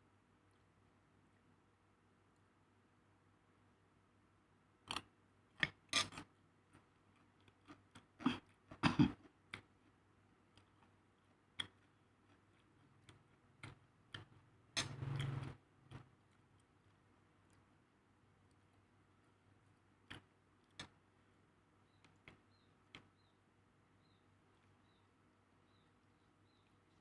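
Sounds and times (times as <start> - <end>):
eating clicks and taps: 20.0 - 21.0.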